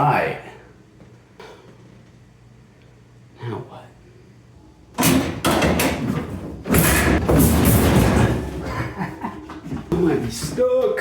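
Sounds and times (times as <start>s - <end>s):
refrigerator thuds and scraping: 5.0s - 9.1s.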